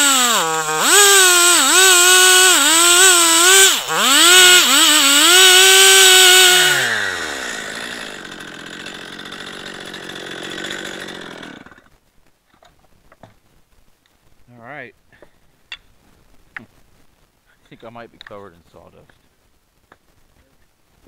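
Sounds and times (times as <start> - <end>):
gas chainsaw running: 0.0 - 11.9.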